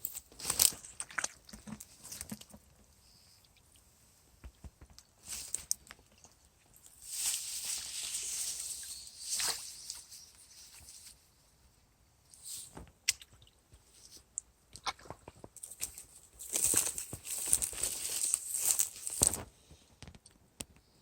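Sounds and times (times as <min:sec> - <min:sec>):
rustling: 0:00.0 - 0:03.0, 0:03.8 - 0:11.4, 0:12.3 - 0:13.0, 0:15.1 - 0:19.9.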